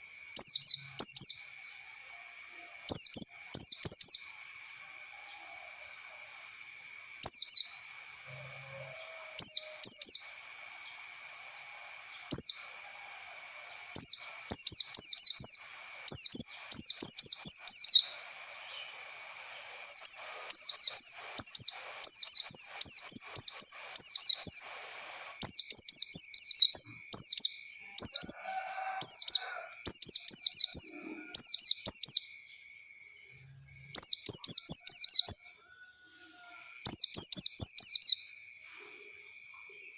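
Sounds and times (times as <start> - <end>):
white-eye chirping song: 0.4 - 1.6, 2.8 - 4.6, 7.2 - 28.4, 29.0 - 32.4, 33.9 - 35.6, 36.9 - 38.3.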